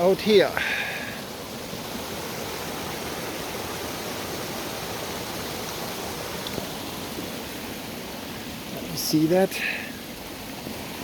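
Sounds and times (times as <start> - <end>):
water rushing from outlet: 0.0 - 11.0.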